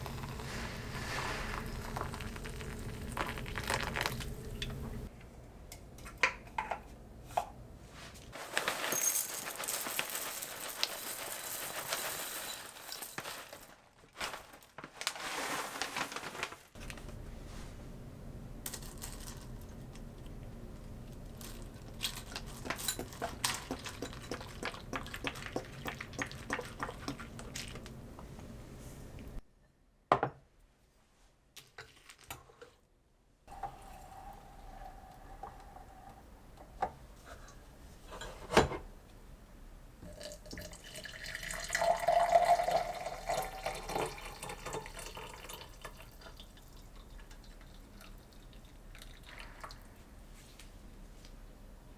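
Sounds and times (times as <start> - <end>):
water dripping and running: 0.0 - 5.1, 21.4 - 28.4, 40.0 - 50.1.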